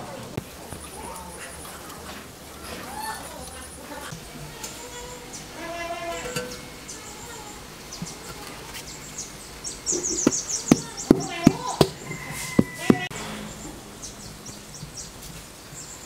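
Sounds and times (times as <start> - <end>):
birds chirping: 0.0 - 16.0
sharp knocks: 10.2 - 13.1.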